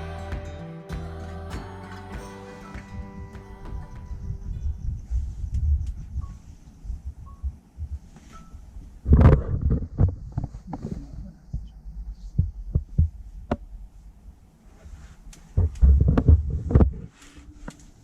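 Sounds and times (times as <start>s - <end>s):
wind buffeting rumble: 3.8s - 8.1s
microphone knocking thumps: 12.4s - 13.6s, 15.6s - 17.0s.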